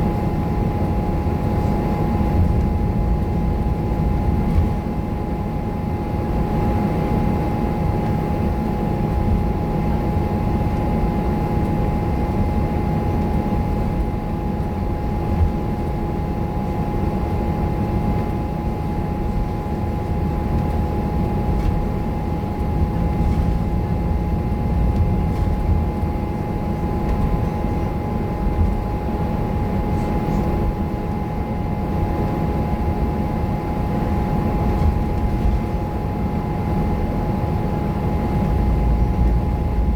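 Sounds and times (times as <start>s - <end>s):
steady high whine: 0.0s - 39.9s
bus diesel engine running: 22.4s - 27.8s, 38.4s - 39.9s.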